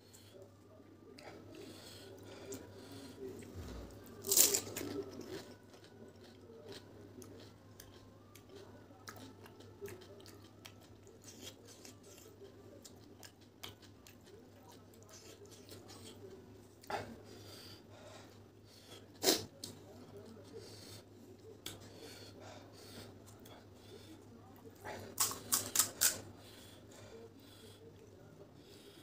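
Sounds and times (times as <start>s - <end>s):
person chewing crunchy food: 3.8s - 16.2s, 25.0s - 26.2s.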